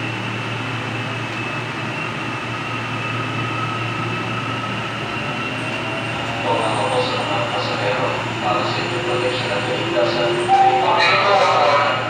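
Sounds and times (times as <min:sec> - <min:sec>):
train running on rails: 0:00.0 - 0:12.0.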